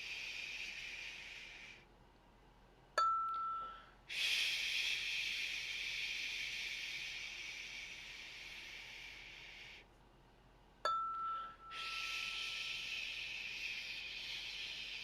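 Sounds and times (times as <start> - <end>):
man voicing breathy shh: 0.0 - 1.9, 4.1 - 9.9, 11.7 - 15.0
clear ding: 3.0 - 3.9, 10.9 - 12.1.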